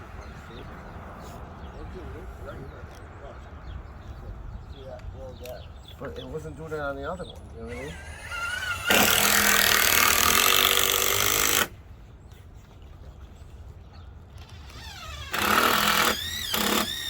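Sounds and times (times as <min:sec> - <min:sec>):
power drill running: 0:07.7 - 0:11.7, 0:14.6 - 0:17.0.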